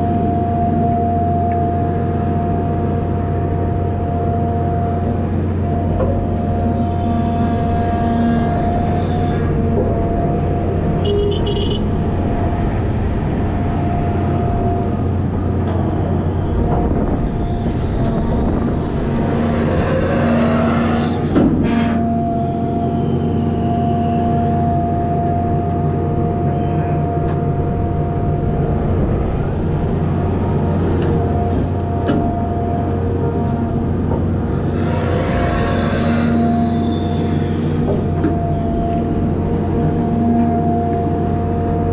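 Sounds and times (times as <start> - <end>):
steady whine: 0.0 - 41.9
truck diesel engine running: 1.6 - 41.9.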